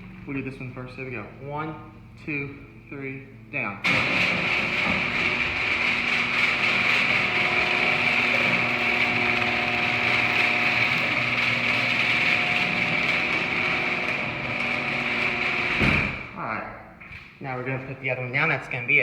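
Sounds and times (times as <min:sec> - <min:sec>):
garage door opener motor whining: 0:03.8 - 0:16.4.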